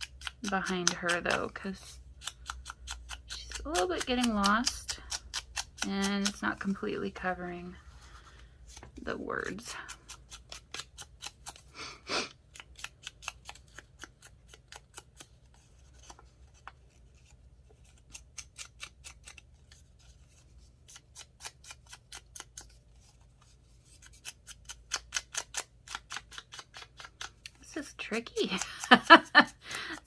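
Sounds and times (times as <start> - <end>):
light sharp paper-crafting clicks: 24.0 - 27.6.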